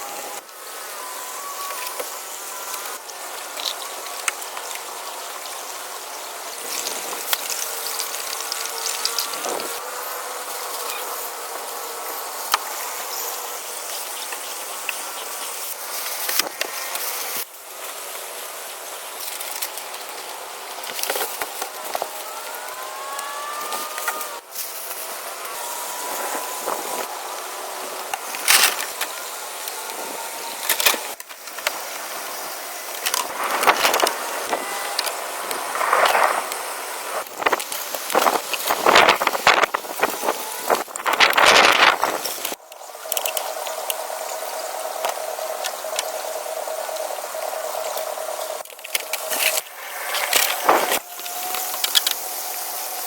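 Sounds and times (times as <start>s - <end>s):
insects buzzing and chirring: 0.0s - 53.0s
gliding calls: 0.1s - 4.1s, 21.2s - 53.0s.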